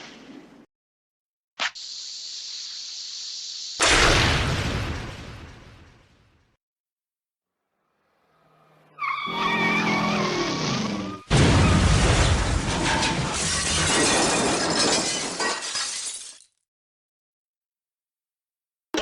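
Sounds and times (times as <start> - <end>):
tyres screeching: 8.8 - 11.3
crash of shattering glass: 11.3 - 16.6.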